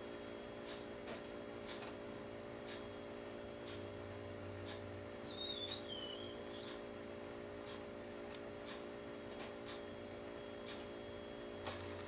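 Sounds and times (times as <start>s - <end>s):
faint low hum: 0.0s - 12.0s
songbird chirps: 2.6s - 7.9s.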